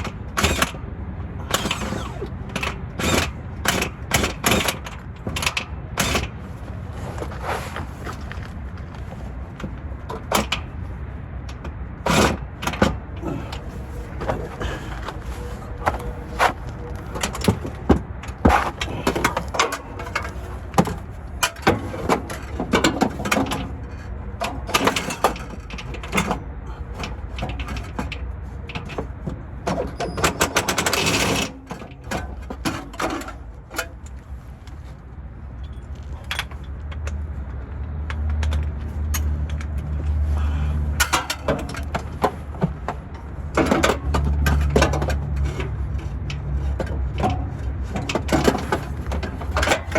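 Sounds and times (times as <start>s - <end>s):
metal knocks and clanks: 41.0s - 49.9s.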